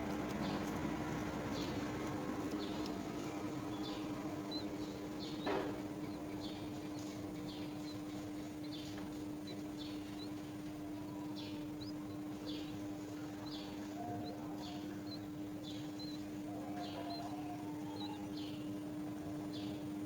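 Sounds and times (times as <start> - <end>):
steady low hum: 0.0 - 20.0
bird chirps: 13.4 - 18.7.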